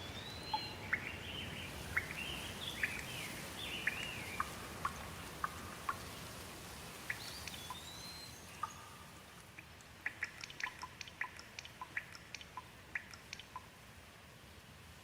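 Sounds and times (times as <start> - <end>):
bird whistled call: 0.0 - 1.2, 7.1 - 9.0
light rain dripping: 0.0 - 15.0
soft steady hiss: 0.0 - 15.0.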